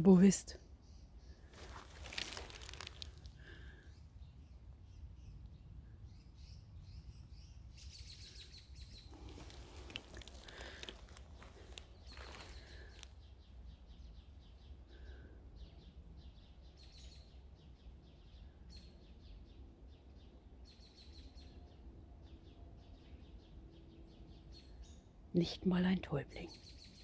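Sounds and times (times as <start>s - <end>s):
faint low rumble: 0.0s - 26.8s
rustling: 1.5s - 3.6s, 9.1s - 13.1s.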